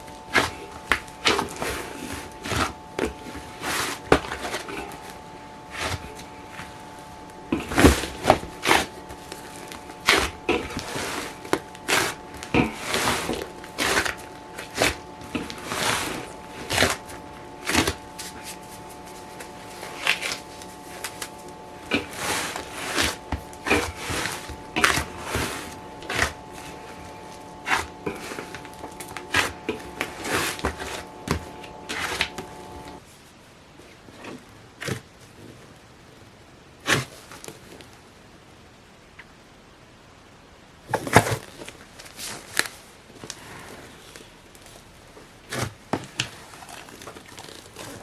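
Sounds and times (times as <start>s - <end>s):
multi-tone hum: 0.0s - 34.8s.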